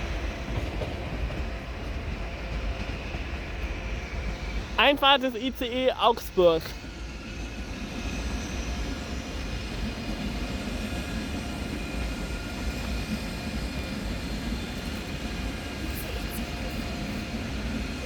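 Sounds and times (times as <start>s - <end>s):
electric train rumbling into station: 0.0s - 18.0s
brief high train squeaks: 6.8s - 18.0s.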